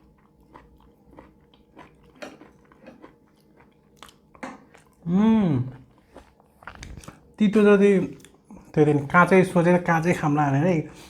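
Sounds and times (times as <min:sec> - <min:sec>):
chewing and crunching: 0:00.0 - 0:08.7.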